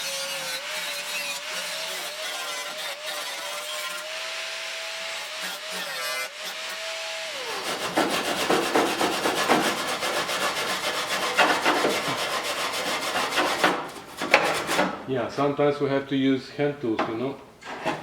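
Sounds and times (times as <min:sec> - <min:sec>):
electric grinder on sheet steel: 0:00.0 - 0:13.8
hand tool rasping on metal: 0:05.0 - 0:15.0.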